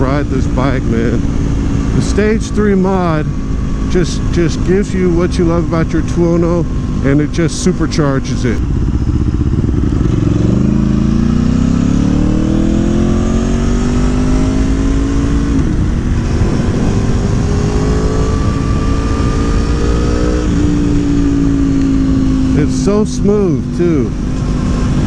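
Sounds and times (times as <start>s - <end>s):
motorcycle engine accelerating: 0.0s - 25.0s
wind on microphone: 12.5s - 22.6s.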